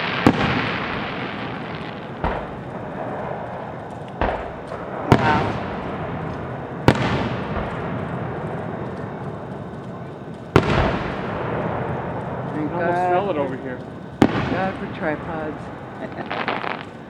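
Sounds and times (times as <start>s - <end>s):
firework shells booming: 0.0s - 17.0s
rolling rumble: 0.0s - 17.0s.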